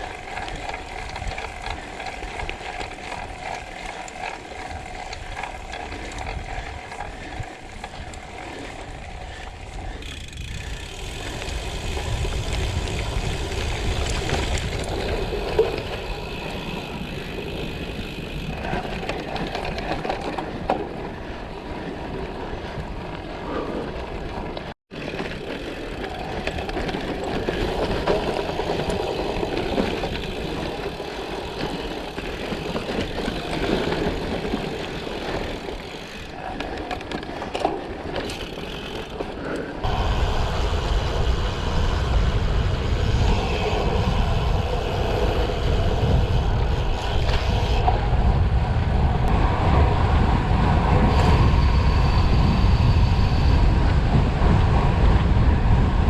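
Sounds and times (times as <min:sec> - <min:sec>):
bike tyres crunching on gravel: 0:00.0 - 0:20.7, 0:25.0 - 0:40.9
wind rumble on microphone: 0:00.0 - 0:24.7, 0:25.9 - 0:56.0.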